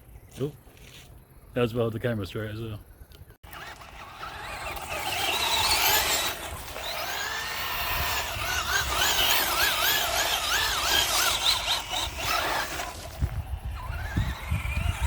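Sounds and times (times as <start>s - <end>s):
electric motor whining: 3.5s - 15.0s.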